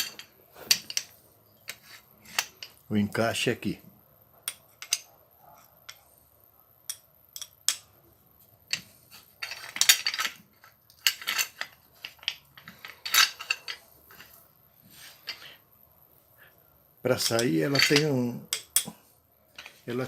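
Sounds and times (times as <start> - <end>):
metal parts clattering and scraping: 0.0 - 2.9, 4.5 - 5.1, 8.7 - 15.6, 17.1 - 20.0.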